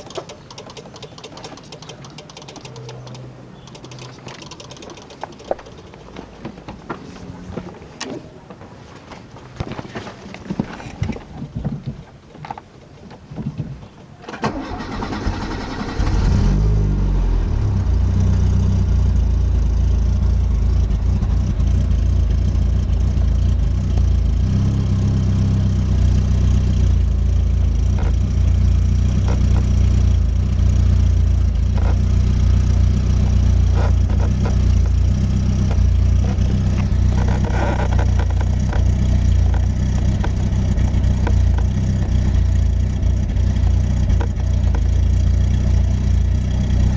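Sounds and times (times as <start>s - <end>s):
starter motor cranking: 0.0s - 5.7s, 14.4s - 16.4s
car engine idling: 14.5s - 46.9s.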